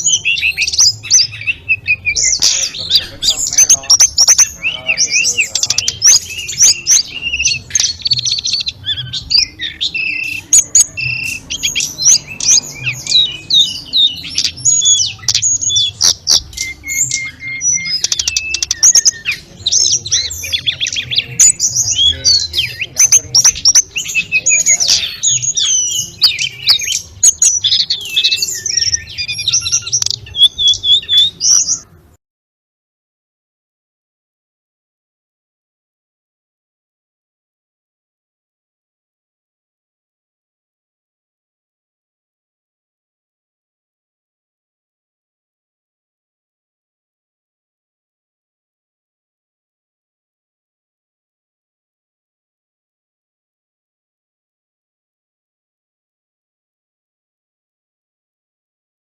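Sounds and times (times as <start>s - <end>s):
bird singing high chirps and whistles: 0.0s - 32.0s.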